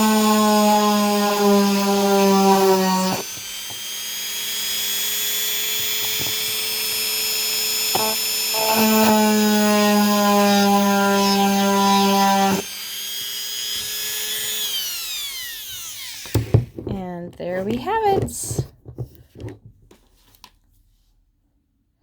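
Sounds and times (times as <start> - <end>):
rotary tool drilling crystal: 0.0 - 16.7.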